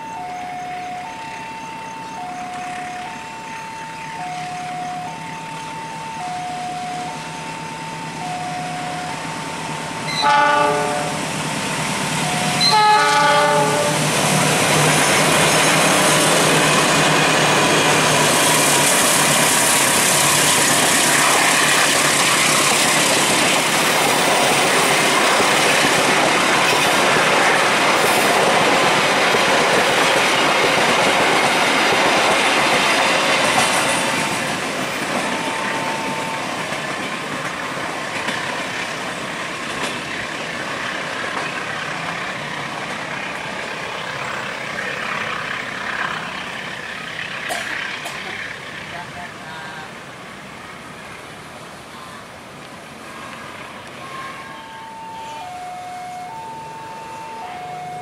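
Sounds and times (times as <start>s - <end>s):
level-crossing alarm tones: 0.0s - 38.9s, 54.0s - 58.0s
train wheel and rail noise: 0.0s - 58.0s
diesel locomotive horn blasts: 6.1s - 14.4s.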